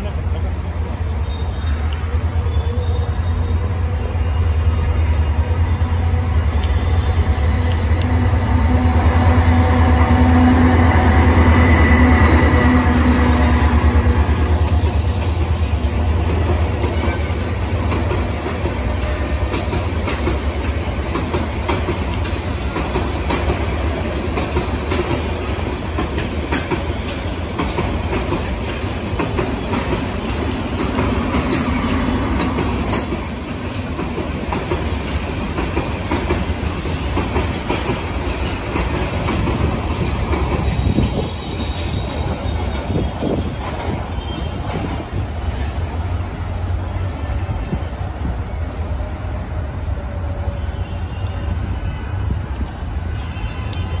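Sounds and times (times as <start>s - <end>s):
train passing with deep drone: 0.0s - 54.0s
train wheels clacking over rail joints: 9.3s - 46.2s.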